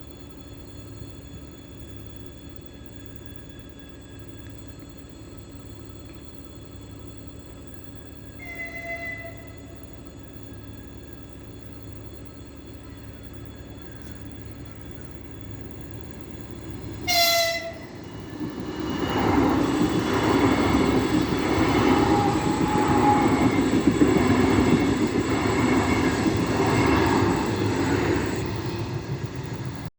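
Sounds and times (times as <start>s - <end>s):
electric train rushing past: 7.0s - 29.9s
train horn blast: 8.4s - 9.8s, 17.0s - 18.0s, 21.6s - 23.6s.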